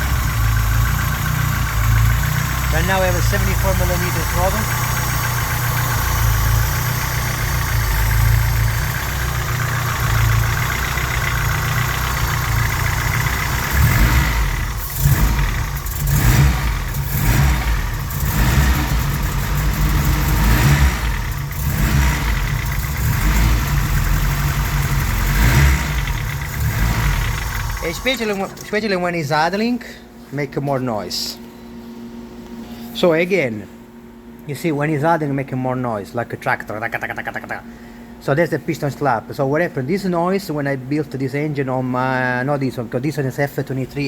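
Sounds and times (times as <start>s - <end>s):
engine idling with clattering knock: 0.0s - 28.7s
engine revving blips: 0.0s - 28.7s.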